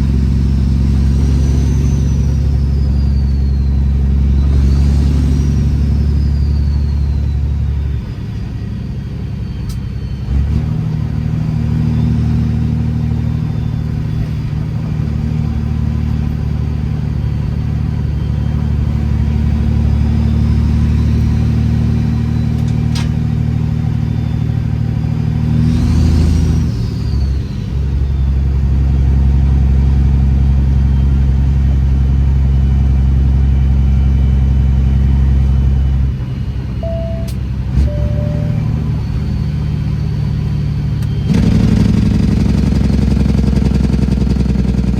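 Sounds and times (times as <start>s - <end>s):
diesel truck engine droning: 0.0s - 44.9s.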